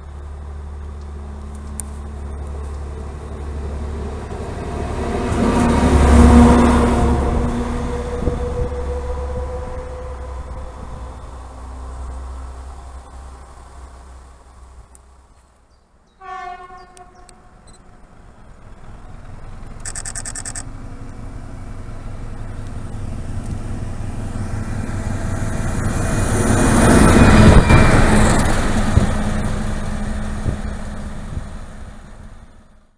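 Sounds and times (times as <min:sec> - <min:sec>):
train rumble and wheel noise: 0:00.0 - 0:32.9
train horn blast: 0:16.2 - 0:17.6.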